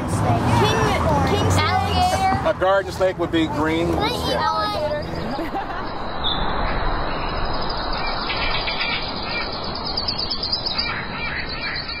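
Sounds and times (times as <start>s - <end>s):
steady noisy background: 0.0s - 12.0s
birds calling: 4.9s - 12.0s.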